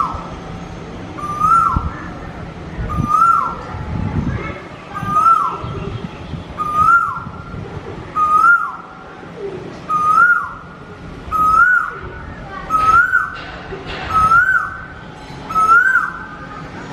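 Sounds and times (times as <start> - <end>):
bird whistled call: 1.2 - 1.8, 2.9 - 3.6, 5.0 - 5.7, 6.6 - 7.3, 8.2 - 8.8, 9.9 - 10.6, 11.3 - 12.0, 12.7 - 13.4, 14.1 - 14.9, 15.5 - 16.4.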